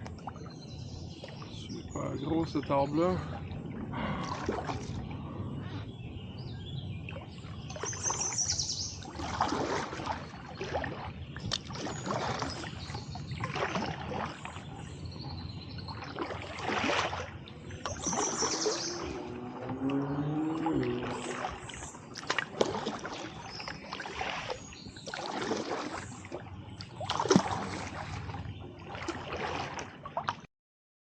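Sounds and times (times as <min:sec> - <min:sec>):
water splashing and dripping: 0:00.0 - 0:05.2, 0:07.1 - 0:15.0, 0:15.7 - 0:30.5
paddle swishing through water: 0:00.0 - 0:30.5
birds chirping: 0:00.2 - 0:09.1, 0:11.2 - 0:16.3, 0:17.4 - 0:22.2, 0:23.2 - 0:25.3.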